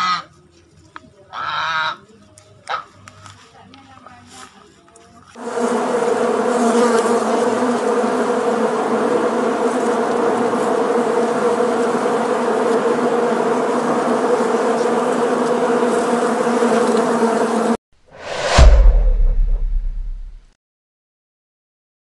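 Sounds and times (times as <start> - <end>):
honeybees buzzing: 5.4 - 17.8.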